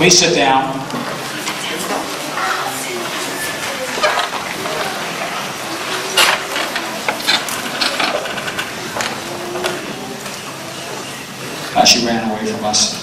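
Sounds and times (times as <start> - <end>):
audience rustling: 0.0 - 13.0
hall hubbub: 0.0 - 13.0
sharp clicks and knocks: 6.2 - 9.8.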